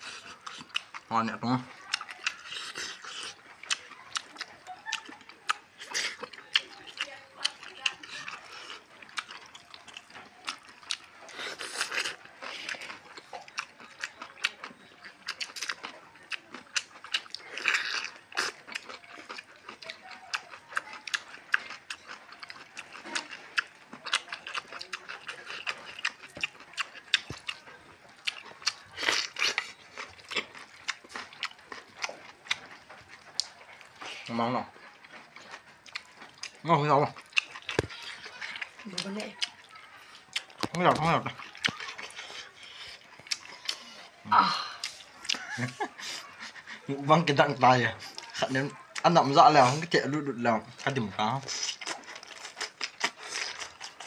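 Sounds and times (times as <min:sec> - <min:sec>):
wet chewing and lip smacks: 0:00.0 - 0:54.0
crunchy cucumber bites: 0:35.4 - 0:39.6, 0:40.2 - 0:45.8, 0:50.9 - 0:54.0.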